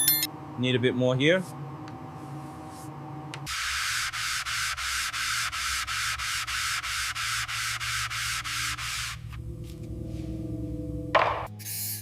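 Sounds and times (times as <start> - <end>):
sandpaper rubbing on car panel: 3.5 - 9.2.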